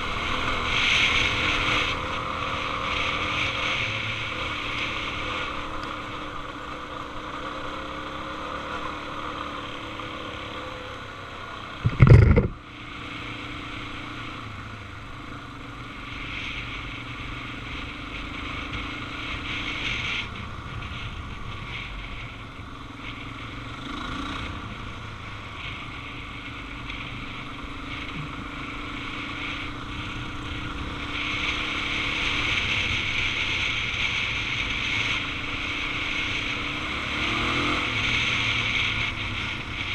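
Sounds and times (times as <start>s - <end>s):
motorcycle engine running: 0.0s - 39.9s
loud thump: 11.8s - 12.6s
wind rushing over microphone: 11.8s - 13.4s, 14.1s - 39.9s.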